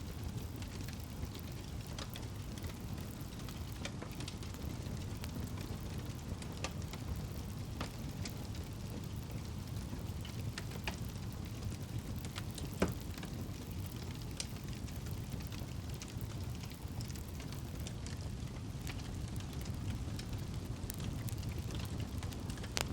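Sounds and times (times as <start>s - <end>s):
campfire flames rumbling: 0.0s - 22.9s
fire crackles and pops: 0.0s - 22.9s.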